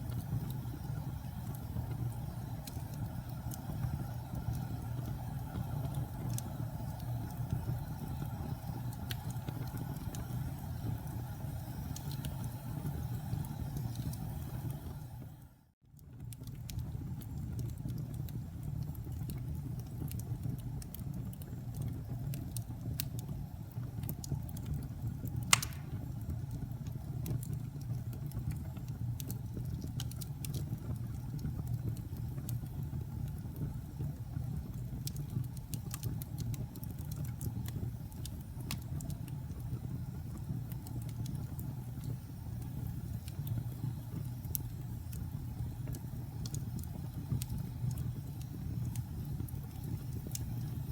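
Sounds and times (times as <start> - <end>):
wood fire crackling: 0.0 - 50.9
loud pop of burning wood: 25.5 - 26.2.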